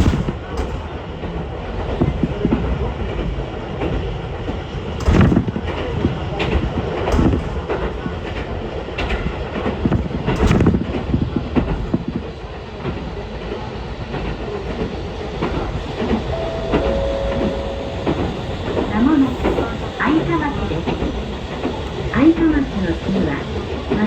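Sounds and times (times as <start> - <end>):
train rumbling: 0.0 - 24.0
short steady whine: 16.3 - 19.7.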